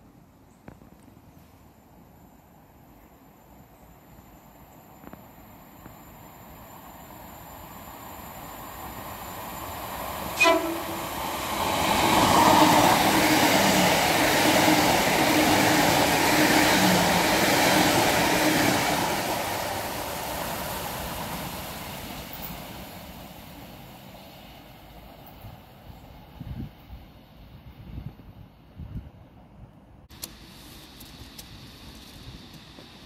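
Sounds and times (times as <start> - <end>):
train wheels rushing on rail: 5.0 - 28.1, 30.1 - 33.0
train horn toot: 10.4 - 11.3.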